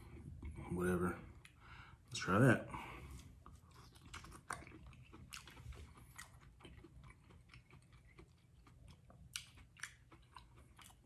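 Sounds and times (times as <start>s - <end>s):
chewing corn on the cob: 3.4s - 11.0s.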